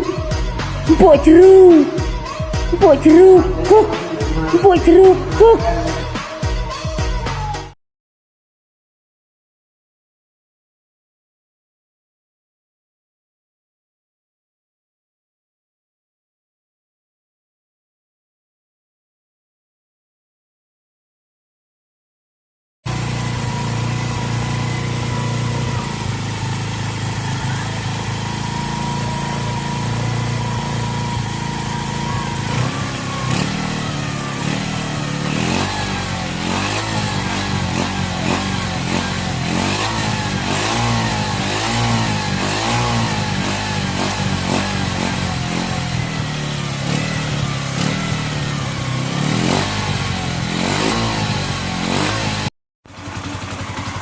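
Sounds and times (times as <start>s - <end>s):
motorcycle engine idling and revving: 0.0s - 7.8s, 22.9s - 54.0s.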